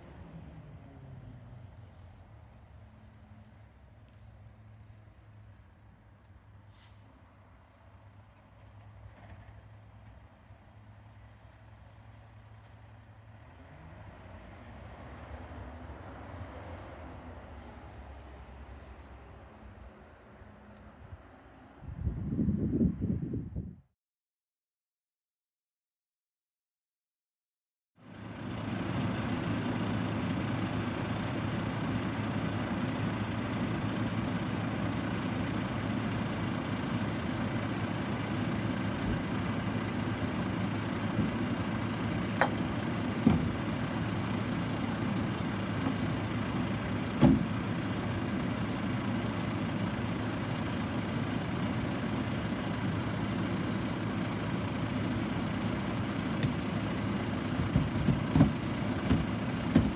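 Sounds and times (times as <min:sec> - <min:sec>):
garbage truck engine running: 0:28.0 - 0:59.9.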